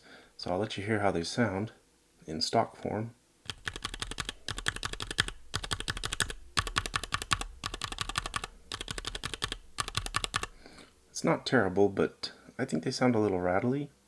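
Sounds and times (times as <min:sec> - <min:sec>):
mechanical keyboard keys clacking: 0:03.5 - 0:10.5.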